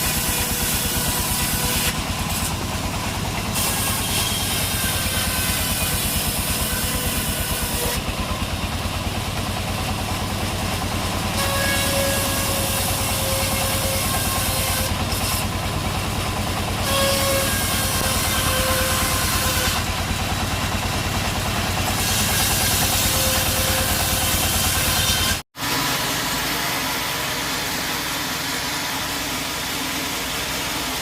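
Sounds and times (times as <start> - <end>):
engine chugging: 0.0 - 31.0
machine whining tones: 10.1 - 31.0.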